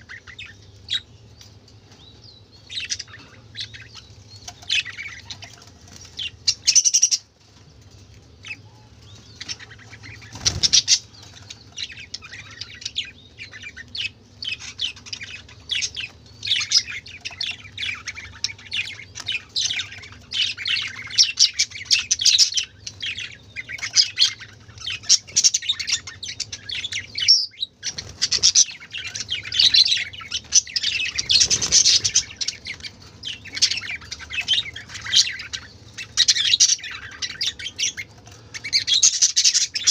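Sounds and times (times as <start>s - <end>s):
budgerigars chattering: 8.4s - 39.9s.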